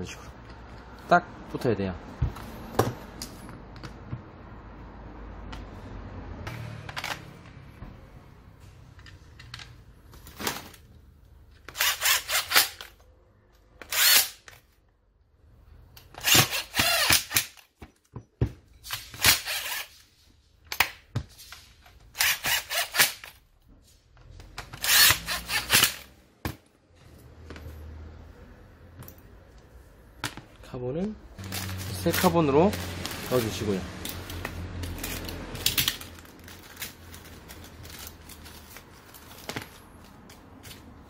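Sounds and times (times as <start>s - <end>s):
power drill-driver bursts: 11.7s - 12.9s, 13.8s - 14.5s, 16.1s - 17.6s, 19.2s - 19.9s, 22.2s - 23.3s, 24.8s - 26.1s.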